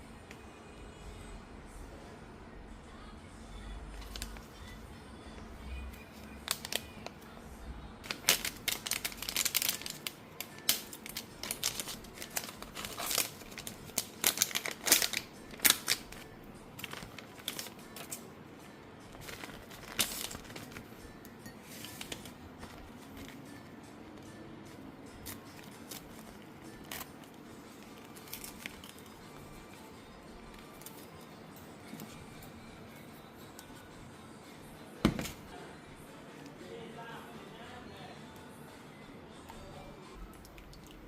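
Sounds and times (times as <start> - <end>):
packaging crinkling and rustling: 4.0 - 4.5, 6.4 - 7.1, 8.0 - 18.2, 19.1 - 20.9, 21.8 - 23.4, 25.2 - 29.1.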